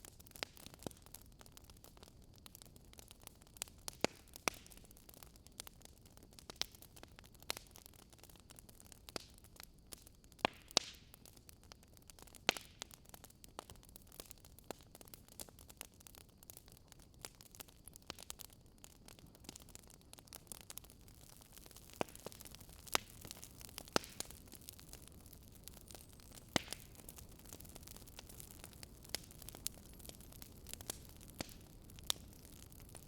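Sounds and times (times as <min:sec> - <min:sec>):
wood fire crackling and popping: 0:00.0 - 0:33.0.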